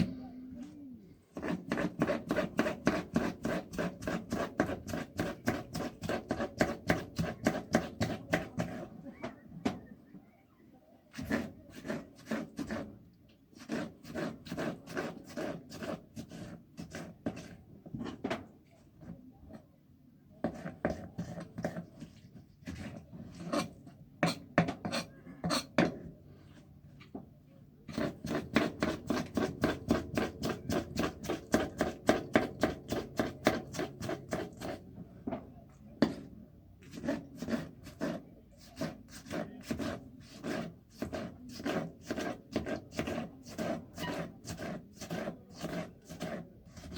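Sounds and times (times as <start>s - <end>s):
rhythmic scraping on wood: 1.3s - 9.2s, 11.2s - 17.6s, 27.9s - 34.9s, 36.9s - 46.9s.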